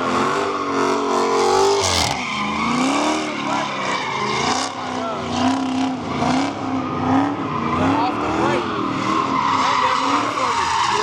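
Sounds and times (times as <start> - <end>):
car engine revving: 0.0 - 11.0
tyres squealing: 1.4 - 6.7.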